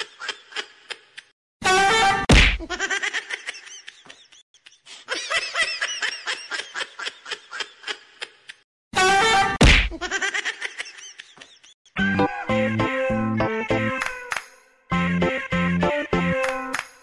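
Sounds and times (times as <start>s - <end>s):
thud: 2.3s - 2.6s, 9.6s - 10.0s.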